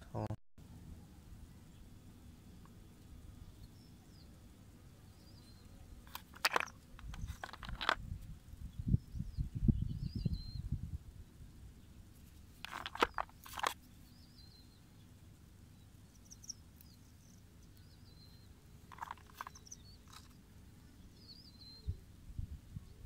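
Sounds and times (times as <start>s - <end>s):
small bird chirping: 5.1s - 7.9s, 8.6s - 10.8s, 11.8s - 22.0s
stones clicking and knocking: 6.0s - 8.2s, 12.2s - 14.0s, 18.8s - 20.4s.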